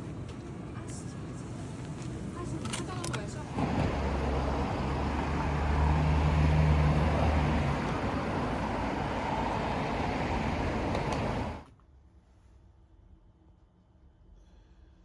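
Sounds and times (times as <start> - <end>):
road traffic engine hum: 3.2 - 11.7.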